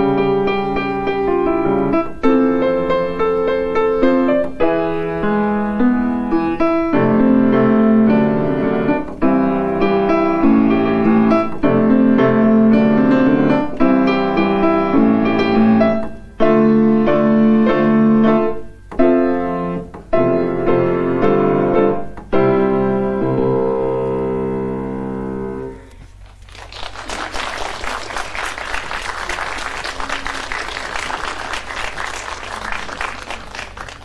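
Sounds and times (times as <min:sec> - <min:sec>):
piano playing sustained chords: 0:00.0 - 0:26.0.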